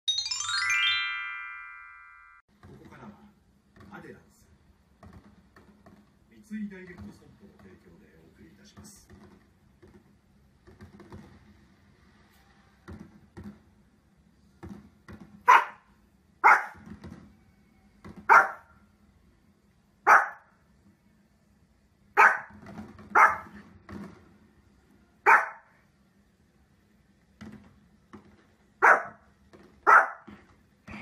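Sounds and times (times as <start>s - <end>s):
small dog barking: 15.5s - 16.8s, 18.3s - 18.7s, 20.0s - 20.5s, 22.2s - 23.6s, 25.2s - 25.7s, 28.8s - 29.2s, 29.8s - 30.3s.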